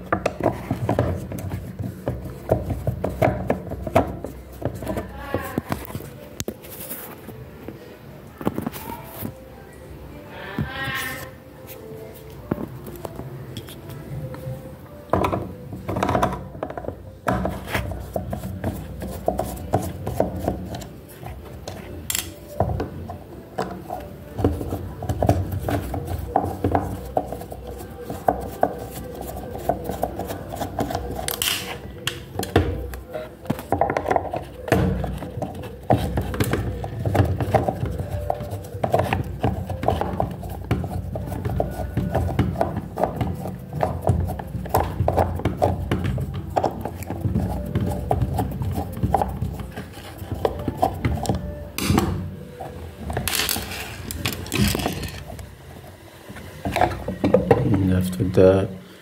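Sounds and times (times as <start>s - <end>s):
background music: 0.0s - 59.0s
hand tools knocking and clattering: 23.6s - 55.3s.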